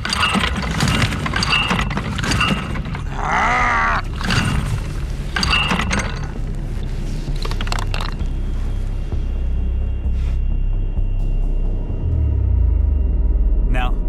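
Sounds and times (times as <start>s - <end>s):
strained groan: 0.0s - 6.4s
outboard motor recoil starter pulls: 0.0s - 6.5s.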